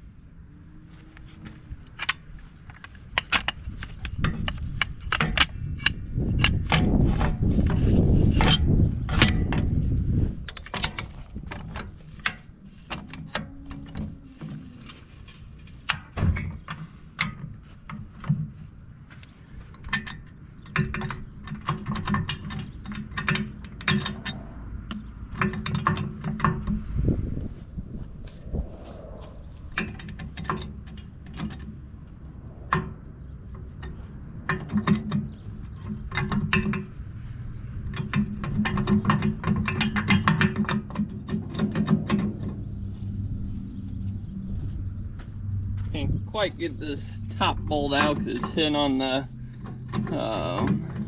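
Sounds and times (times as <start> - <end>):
low rumble: 23.8 - 35.8, 41.4 - 51.0.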